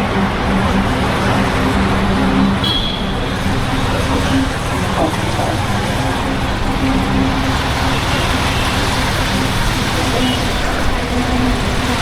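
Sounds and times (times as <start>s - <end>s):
motorcycle engine running: 2.6s - 12.0s.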